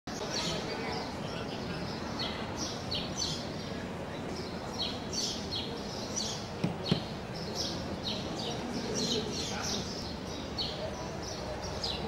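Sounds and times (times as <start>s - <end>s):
small birds chirping: 0.1s - 12.0s
steady background noise: 0.1s - 12.0s
sharp knocks: 6.6s - 7.2s.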